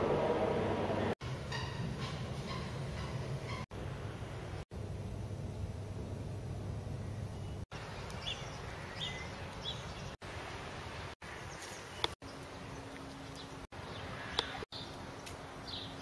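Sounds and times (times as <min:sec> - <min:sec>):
steady low hum: 0:00.0 - 0:09.6
small birds chirping: 0:06.9 - 0:10.2, 0:11.0 - 0:16.0.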